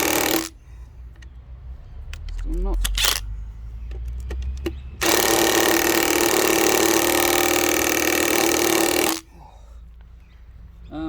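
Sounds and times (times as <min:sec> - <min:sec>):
impact wrench hammering: 0:00.0 - 0:00.6, 0:04.4 - 0:09.2.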